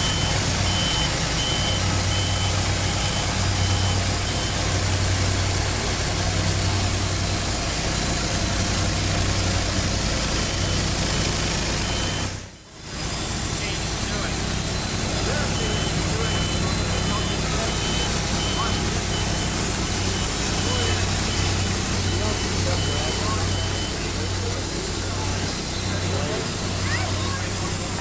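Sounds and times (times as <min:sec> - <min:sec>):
backup alarm beeping: 0:00.0 - 0:06.7, 0:10.5 - 0:27.9
engines running: 0:00.0 - 0:28.0.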